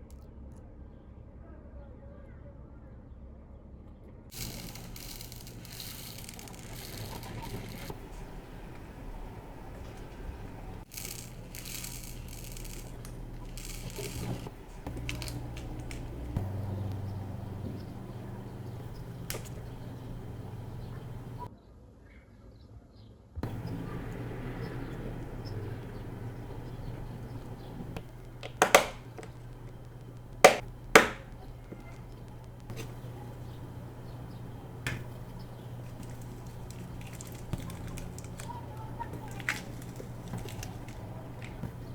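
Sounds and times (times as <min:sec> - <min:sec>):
beads clicking and rattling: 0:04.3 - 0:21.2, 0:26.0 - 0:41.9
low steady hum: 0:04.3 - 0:21.5, 0:23.4 - 0:41.9
plastic packaging crinkling: 0:04.3 - 0:21.5, 0:23.4 - 0:41.9.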